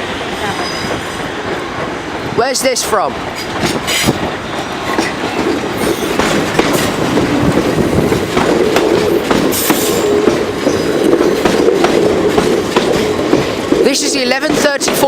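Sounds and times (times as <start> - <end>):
train wheels clicking over rail joints: 3.2 - 15.0.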